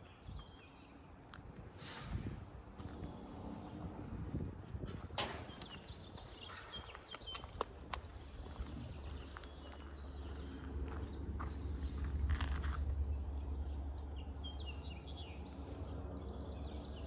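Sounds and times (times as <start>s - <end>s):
small birds chirping: 5.4s - 17.0s.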